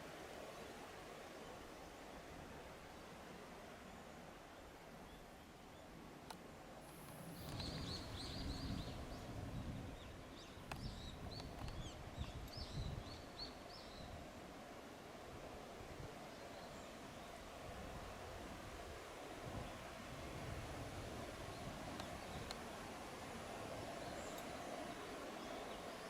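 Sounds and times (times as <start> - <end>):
low outdoor noise: 0.0 - 26.0
faint clicks: 6.2 - 8.0, 10.6 - 12.6, 21.9 - 22.7, 24.3 - 24.6.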